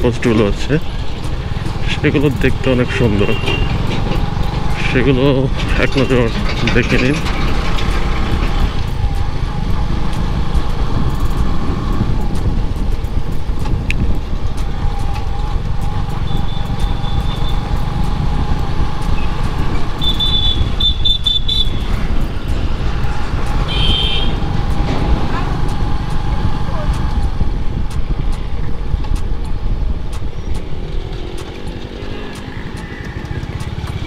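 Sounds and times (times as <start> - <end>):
wind and road noise: 0.0 - 34.0
vehicle horn beeping: 3.0 - 3.8, 16.2 - 17.6, 20.0 - 22.0, 23.6 - 24.5.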